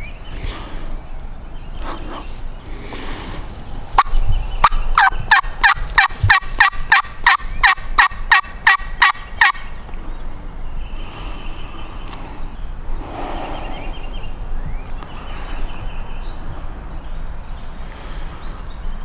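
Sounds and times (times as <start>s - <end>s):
turkey yelping: 4.0s - 9.7s.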